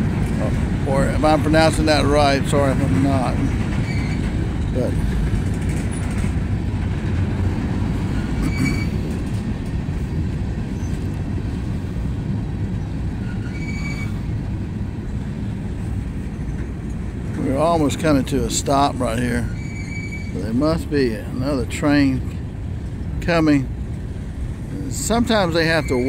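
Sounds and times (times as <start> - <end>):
train wheels rumbling: 0.0 - 26.0
faint wheel squeals: 3.4 - 5.0, 8.1 - 9.2, 10.7 - 11.1, 12.8 - 14.4, 19.2 - 20.5, 25.5 - 26.0.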